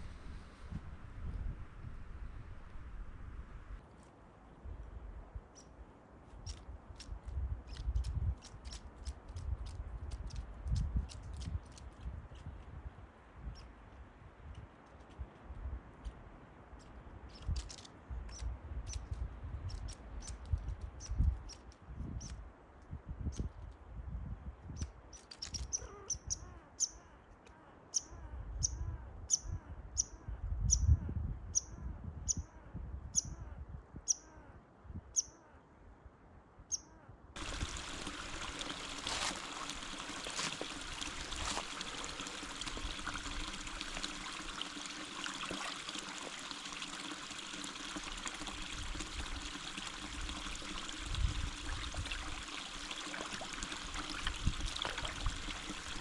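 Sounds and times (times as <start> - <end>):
bird high chirps: 24.8 - 27.2, 27.9 - 31.0, 31.6 - 32.6, 33.2 - 33.5, 34.1 - 34.5, 35.2 - 35.6, 36.7 - 37.0
running water: 37.4 - 56.0.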